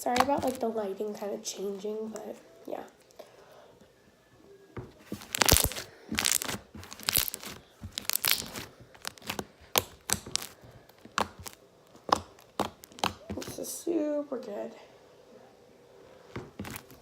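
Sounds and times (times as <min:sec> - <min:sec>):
foam slime clicking and crackling: 0:00.0 - 0:00.7, 0:05.0 - 0:13.6, 0:16.5 - 0:17.0.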